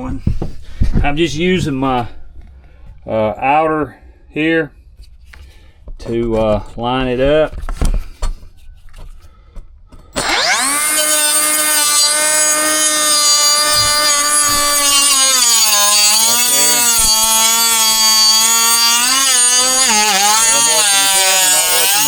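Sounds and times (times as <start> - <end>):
power saw cutting floor: 10.0 - 22.0.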